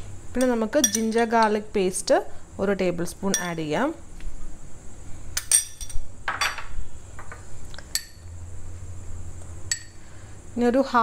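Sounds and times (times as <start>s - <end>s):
spoon clinking against bowl: 0.4s - 1.6s, 3.3s - 3.6s, 5.4s - 6.6s.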